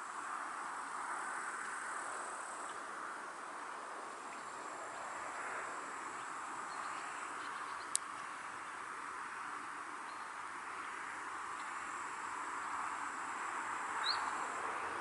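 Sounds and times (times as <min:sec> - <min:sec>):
rushing hiss of breeze: 0:00.0 - 0:15.0
high-pitched insect trill: 0:11.5 - 0:15.0.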